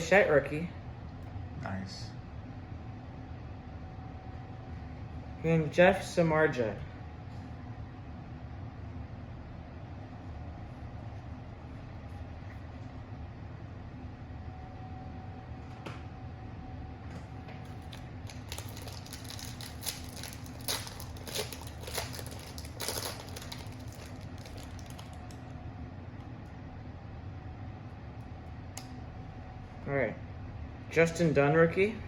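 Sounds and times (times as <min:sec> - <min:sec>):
steady low hum: 0:00.0 - 0:32.0
trading cards clicking and scraping: 0:17.7 - 0:25.4.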